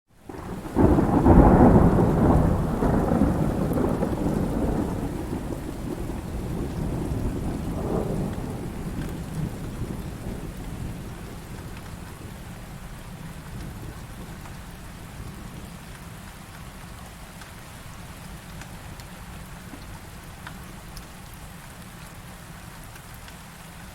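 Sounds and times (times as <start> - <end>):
heavy rain: 0.1 - 23.9
thunder rumbling: 0.3 - 15.8.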